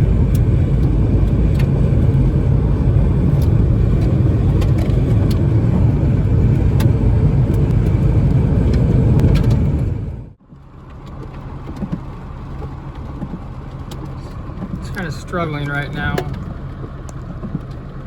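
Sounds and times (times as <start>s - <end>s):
storm wind buffeting microphone: 0.0s - 10.4s.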